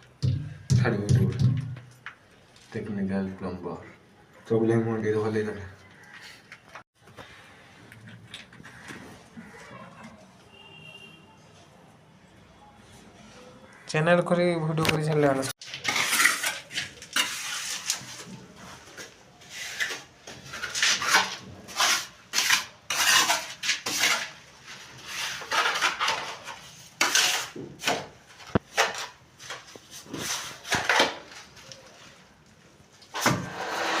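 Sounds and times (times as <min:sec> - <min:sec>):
hand tools scraping and clinking: 0:15.6 - 0:32.2.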